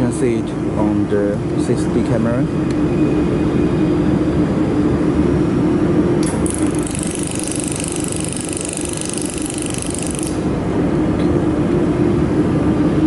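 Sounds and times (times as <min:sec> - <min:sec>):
machine fan humming: 0:00.0 - 0:13.0
high fast buzzing: 0:06.2 - 0:10.6.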